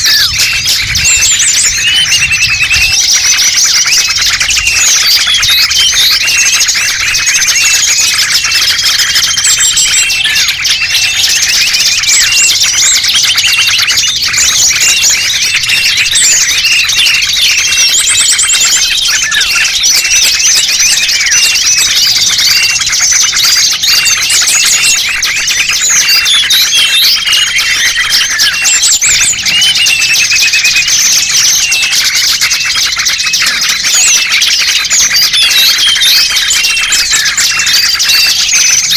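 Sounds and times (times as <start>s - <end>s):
small birds chirping and twittering: 0.0s - 38.9s.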